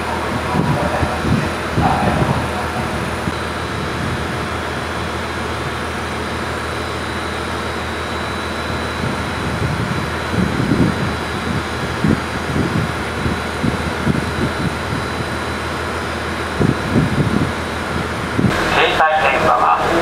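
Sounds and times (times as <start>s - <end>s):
railcar machinery humming: 0.0s - 20.0s
faint high whine: 3.2s - 11.2s.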